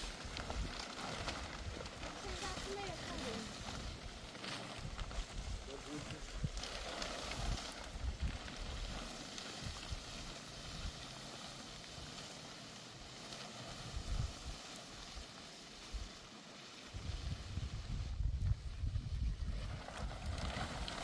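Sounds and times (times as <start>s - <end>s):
rain falling: 0.0s - 4.6s
wind buffeting microphone: 0.0s - 11.0s, 13.8s - 14.6s, 16.9s - 21.0s.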